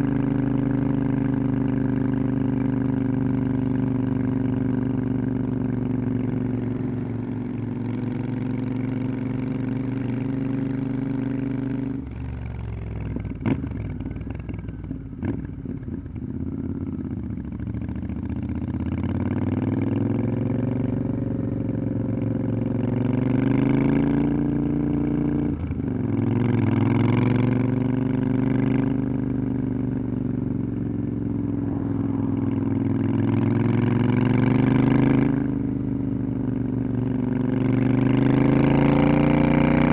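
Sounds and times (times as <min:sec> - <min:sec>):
motorcycle engine revving: 0:18.5 - 0:39.9.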